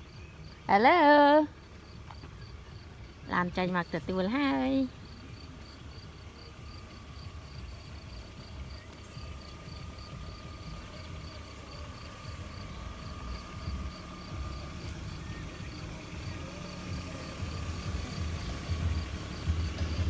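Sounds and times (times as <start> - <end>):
insect chirping: 5.1 - 20.0.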